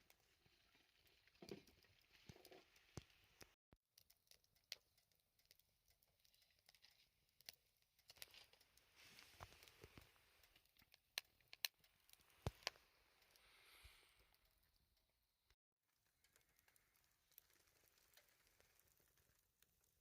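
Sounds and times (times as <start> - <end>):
faint clicks and light taps: 1.4 - 13.4.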